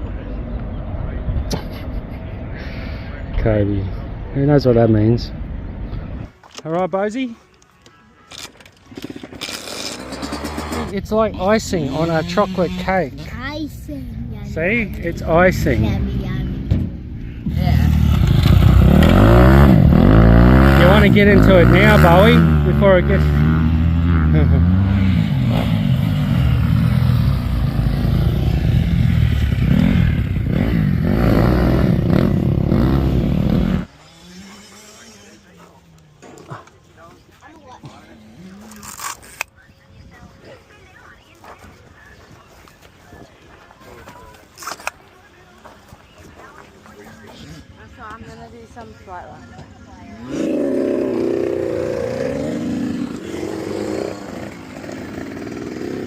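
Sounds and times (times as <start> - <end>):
dirt bike engine revving: 8.9 - 13.5, 14.2 - 35.7, 50.2 - 56.0.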